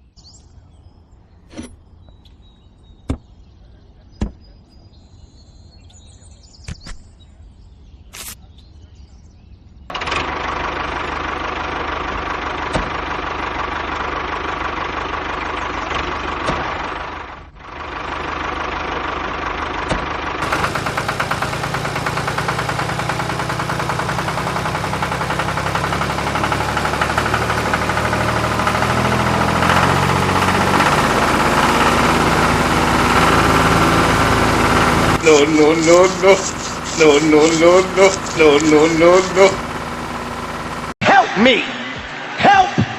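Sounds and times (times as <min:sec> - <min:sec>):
machine engine running: 0:09.9 - 0:41.0.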